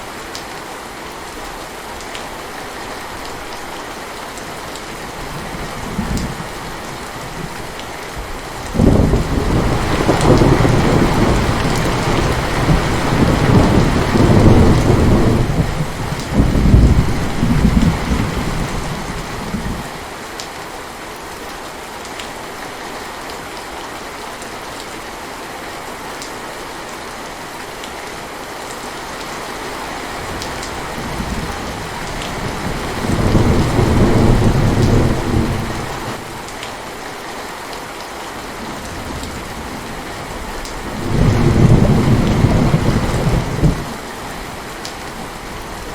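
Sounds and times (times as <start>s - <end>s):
intense rain: 0.0s - 45.9s
rolling thunder: 8.7s - 19.9s, 31.0s - 36.2s, 40.9s - 44.0s.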